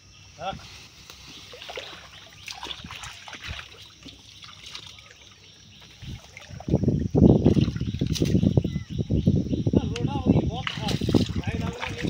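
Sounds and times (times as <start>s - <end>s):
water splashing and sloshing: 1.2s - 8.5s, 10.6s - 12.0s.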